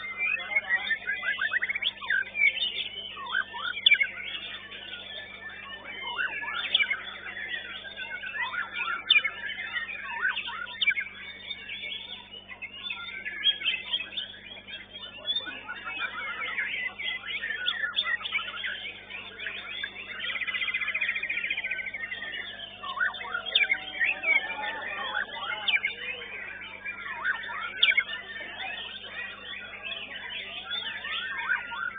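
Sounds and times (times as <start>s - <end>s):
low electrical hum: 0.0s - 31.9s
songbirds singing whistles and chirps: 0.0s - 31.9s
rattling bird trill: 16.4s - 31.9s.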